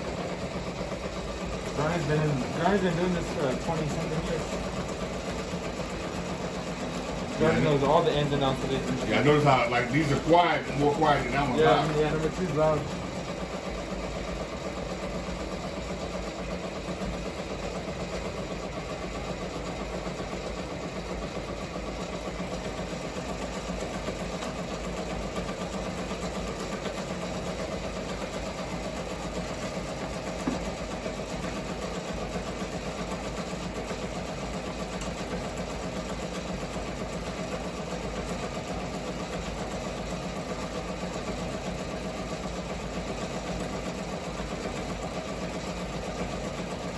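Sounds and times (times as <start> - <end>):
embroidery machines stitching: 0.0 - 46.9
machine smacking noise: 23.1 - 36.6.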